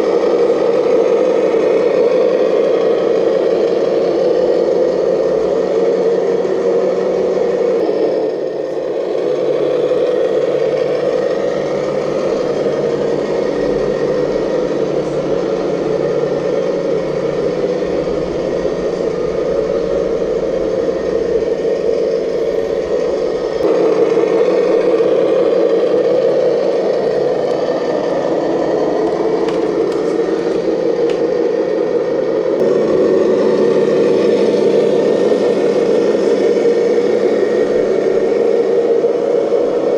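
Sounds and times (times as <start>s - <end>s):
model machine motor whirring: 3.0s - 39.9s.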